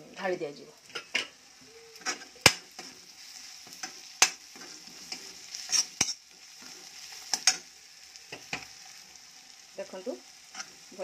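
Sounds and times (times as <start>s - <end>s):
spices sizzling in hot oil: 0.0s - 11.0s
spoon scraping and knocking pan: 2.0s - 7.7s, 8.3s - 8.8s.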